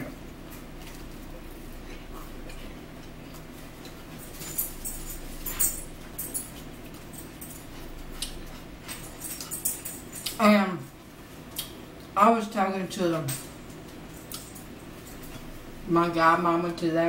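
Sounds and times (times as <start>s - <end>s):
low room hum: 0.0s - 17.0s
mouth chewing and smacking: 6.4s - 10.4s, 11.5s - 12.1s.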